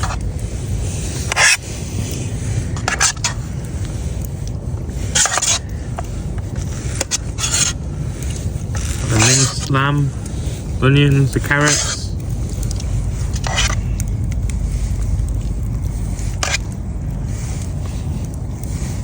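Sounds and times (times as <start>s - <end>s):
wind rumble on microphone: 0.0s - 19.0s
spoon scraping metal pot: 5.1s - 5.7s, 6.6s - 7.8s.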